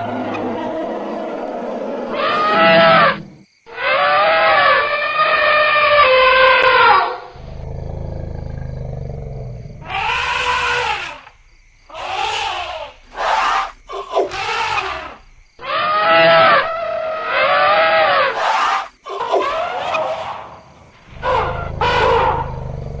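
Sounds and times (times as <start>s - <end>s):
elephants trumpeting: 0.0s - 11.3s, 21.0s - 23.0s
elephant low rumble: 7.3s - 10.8s, 20.9s - 23.0s.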